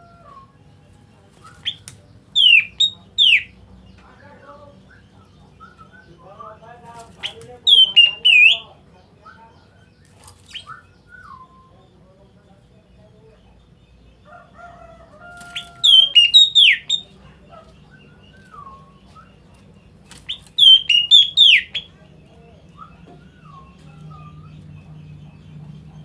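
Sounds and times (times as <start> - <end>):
bird whistling calls: 2.4 - 3.5, 7.2 - 9.5, 10.4 - 11.8, 15.4 - 17.2, 20.2 - 22.0, 22.6 - 24.6.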